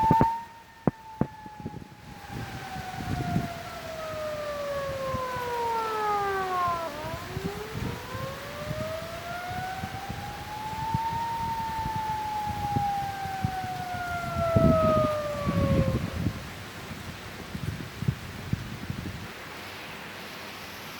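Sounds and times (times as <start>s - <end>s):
siren wailing: 0.0s - 16.9s
gusty wind rumble: 0.0s - 20.9s.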